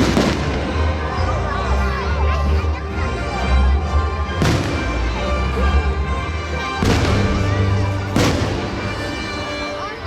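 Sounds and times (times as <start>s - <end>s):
fireworks bursting: 0.0s - 0.9s, 4.4s - 5.1s, 6.8s - 9.5s
crowd noise: 0.0s - 10.0s
show music: 0.0s - 10.0s.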